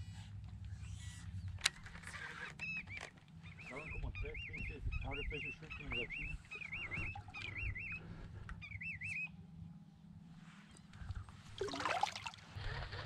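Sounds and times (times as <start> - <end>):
bird warbling call: 2.6 - 9.4
steady low rumble: 3.4 - 11.6.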